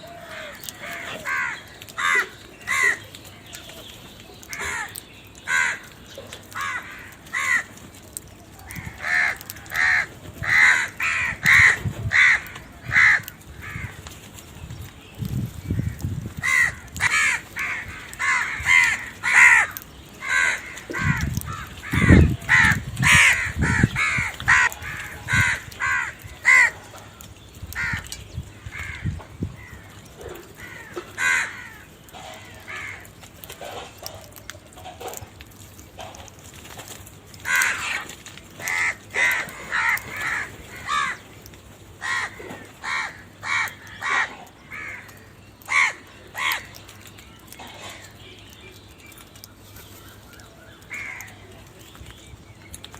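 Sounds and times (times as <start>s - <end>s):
crows cawing: 0.0s - 3.7s, 4.4s - 14.2s, 15.6s - 35.4s, 37.3s - 41.4s, 42.0s - 48.2s, 49.9s - 51.7s.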